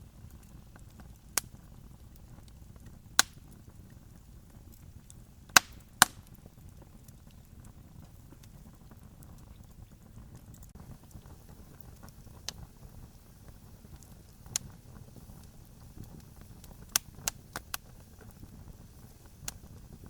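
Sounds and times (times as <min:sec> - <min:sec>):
faint small crackles: 0:00.0 - 0:20.0
low steady fire rumble: 0:00.0 - 0:20.0
wood pops: 0:05.5 - 0:06.4.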